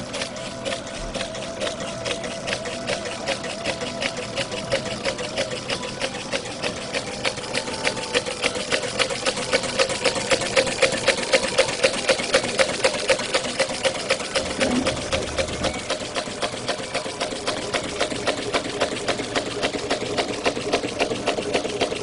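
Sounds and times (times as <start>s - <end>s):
stirling engine clicking: 8.4s - 22.0s.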